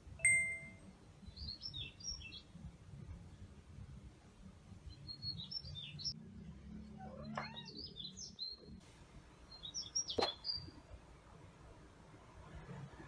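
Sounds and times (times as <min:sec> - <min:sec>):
songbird warbling: 0:09.5 - 0:10.7.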